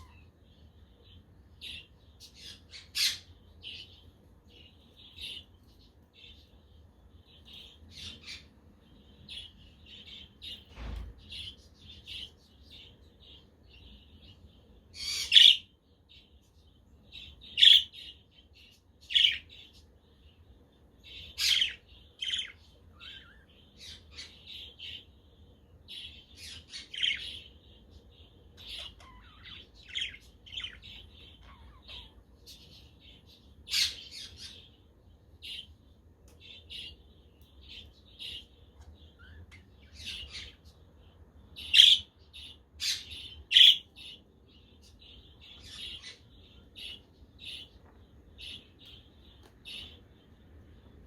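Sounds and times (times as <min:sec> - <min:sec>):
budgerigars chirping: 0:01.0 - 0:05.6, 0:15.0 - 0:15.7, 0:17.2 - 0:18.2, 0:19.0 - 0:19.7, 0:25.9 - 0:34.8, 0:41.6 - 0:49.0
loud sharp bird calls: 0:41.6 - 0:44.3.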